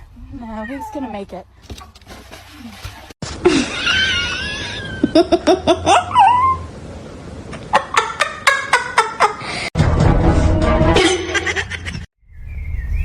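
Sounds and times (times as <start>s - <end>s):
animal high-pitched wavering cry: 6.0s - 6.7s.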